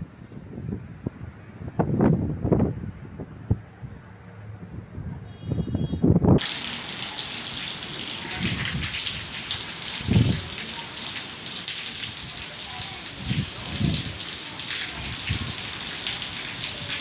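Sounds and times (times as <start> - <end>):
heavy rain pouring: 6.4 - 17.0.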